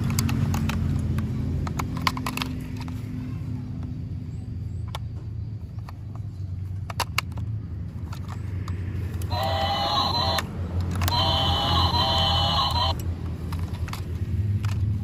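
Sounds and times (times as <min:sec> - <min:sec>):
scattered clicks: 0:00.0 - 0:03.0, 0:05.8 - 0:15.0
horn blasts: 0:09.3 - 0:10.5.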